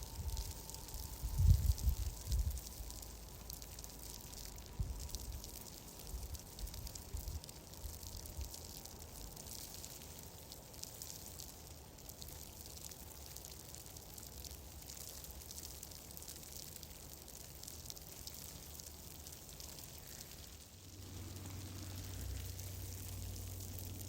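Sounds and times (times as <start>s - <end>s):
steady low rumble: 0.0s - 6.9s, 20.0s - 24.0s
fine crackling ticks: 0.0s - 24.0s.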